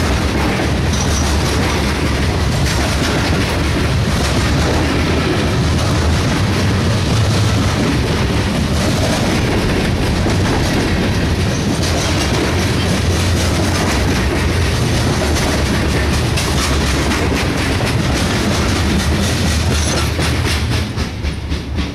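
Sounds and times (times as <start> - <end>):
freight train wheels rumbling: 0.0 - 21.9
wheels clicking over rail joints: 0.0 - 21.9.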